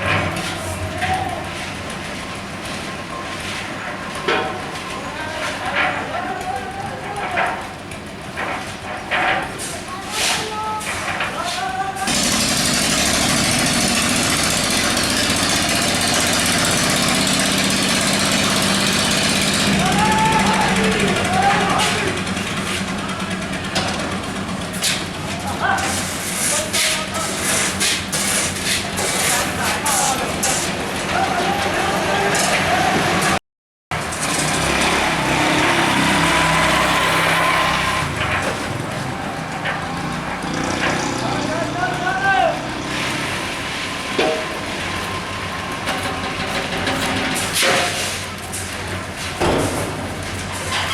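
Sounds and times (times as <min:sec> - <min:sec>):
small engine running: 0:12.1 - 0:24.6, 0:39.7 - 0:44.1.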